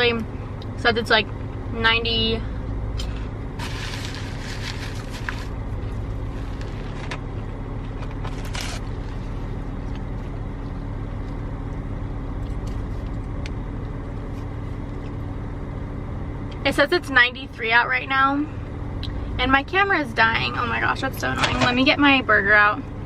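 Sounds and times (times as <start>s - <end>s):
car engine idling: 0.0s - 23.0s
rustling: 3.6s - 7.2s.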